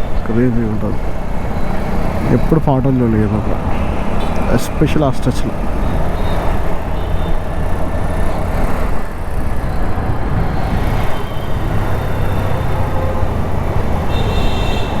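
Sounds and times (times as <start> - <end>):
road traffic: 0.0 - 15.0
scooter engine running: 5.6 - 15.0
wind rumbling on microphone: 8.4 - 14.0.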